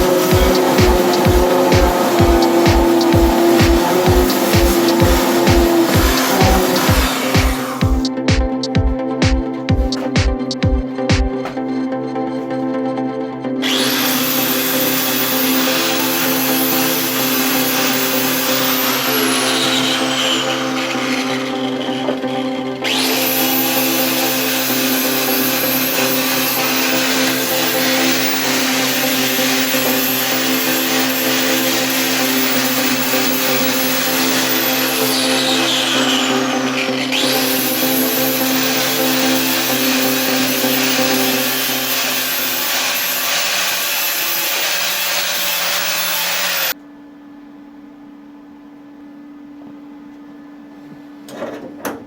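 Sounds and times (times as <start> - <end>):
loud hissing grinding noise: 0.0 - 8.2, 13.6 - 46.8
power tool motor humming: 0.0 - 10.8, 13.6 - 46.8.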